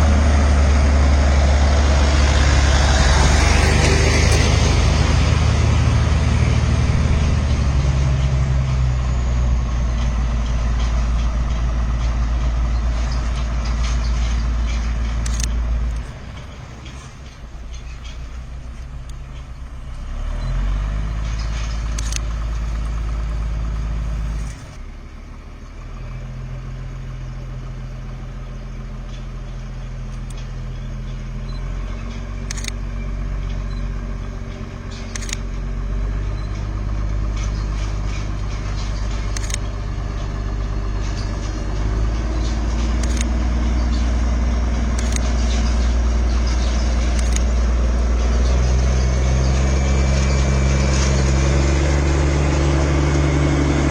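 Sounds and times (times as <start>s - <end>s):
vehicle engine running: 0.0s - 53.9s
sharp clicks: 10.0s - 23.3s, 29.2s - 40.3s, 41.0s - 47.8s.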